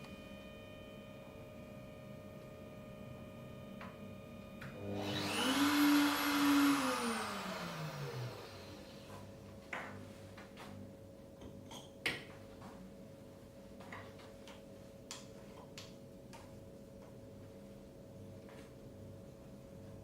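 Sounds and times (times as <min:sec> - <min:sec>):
mill motor whining: 0:04.6 - 0:09.1.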